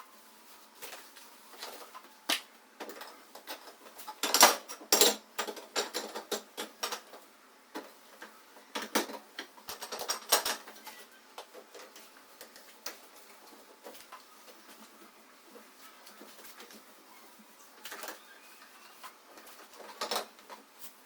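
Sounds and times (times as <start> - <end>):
kitchen items clicking and knocking: 1.6 - 14.2, 19.3 - 20.7.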